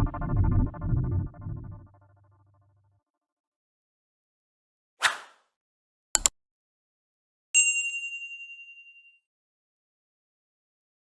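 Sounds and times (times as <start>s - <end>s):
bright bell ding: 7.6s - 9.2s.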